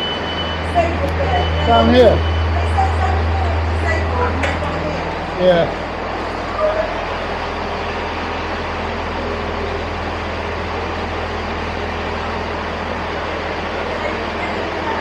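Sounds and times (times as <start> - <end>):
diesel train engines idling: 0.0 - 15.0.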